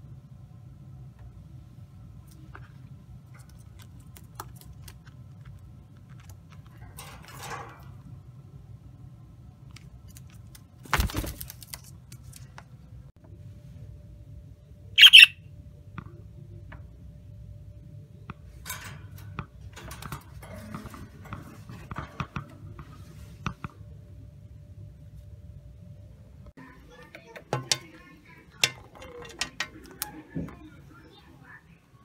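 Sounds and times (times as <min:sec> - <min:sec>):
parrot squawk: 0:15.0 - 0:15.4
soft chirps: 0:15.0 - 0:15.4.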